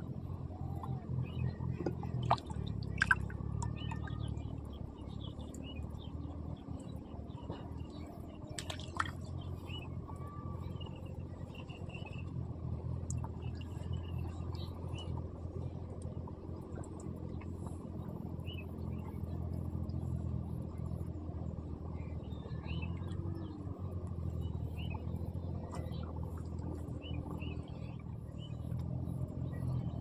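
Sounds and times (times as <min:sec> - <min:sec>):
steady low hum: 0:00.0 - 0:30.0
water dripping and splashing: 0:01.8 - 0:04.2, 0:08.6 - 0:09.2.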